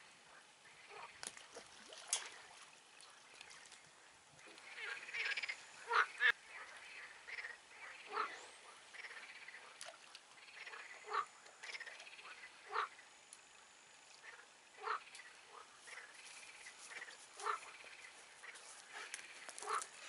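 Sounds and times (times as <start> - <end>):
frog chorus: 0.0 - 1.4, 3.0 - 20.0
single frog croaks: 4.4 - 18.6.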